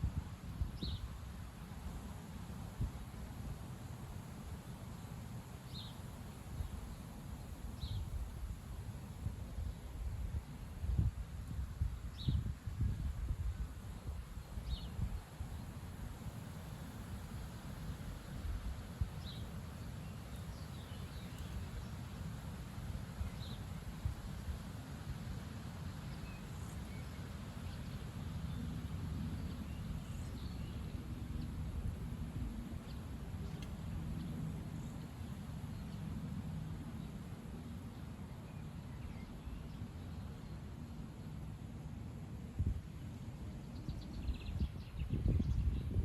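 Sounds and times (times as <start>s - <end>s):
wind buffeting microphone: 9.2s - 15.7s, 44.1s - 46.0s.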